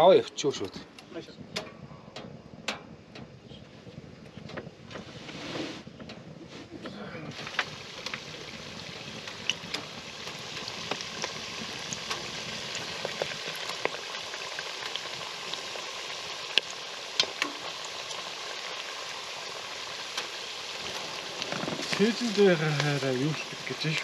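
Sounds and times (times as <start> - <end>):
pastries sizzling in hot oil: 7.0 - 24.0
oil popping and spattering: 7.3 - 24.0.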